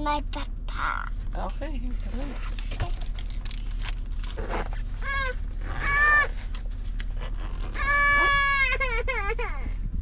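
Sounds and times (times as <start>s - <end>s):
low steady hum: 0.0s - 10.0s
child's high-pitched whiny calls: 5.0s - 6.4s, 7.8s - 9.5s.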